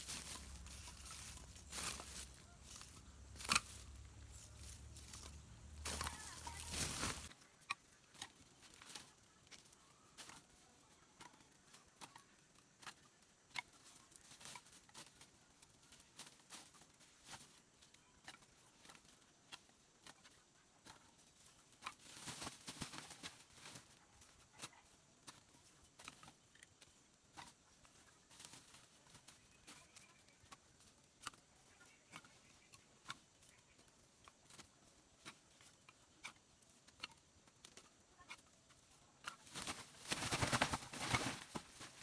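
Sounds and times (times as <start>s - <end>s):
light rustling: 0.0s - 7.4s, 39.2s - 42.0s.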